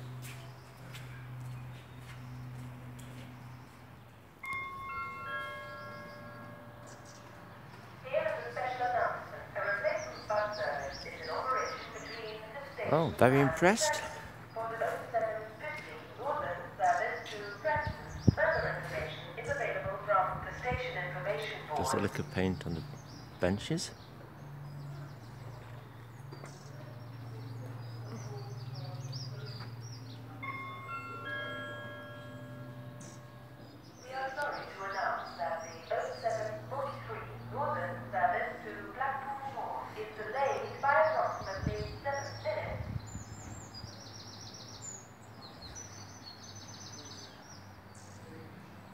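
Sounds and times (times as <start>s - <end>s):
station pa chime: 4.4s - 8.5s, 30.1s - 33.9s
small birds chirping: 5.3s - 48.9s.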